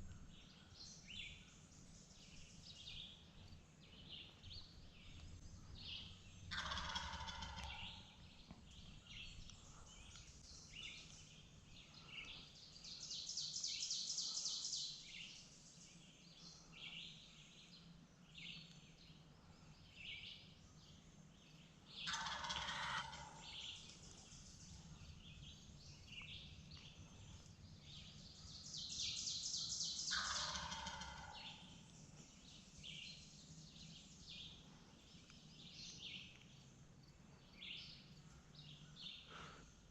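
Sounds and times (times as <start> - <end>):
songbirds chirping and trilling: 0.0 - 39.9
turkey gobbling: 6.5 - 8.0, 22.1 - 23.5, 30.1 - 31.6.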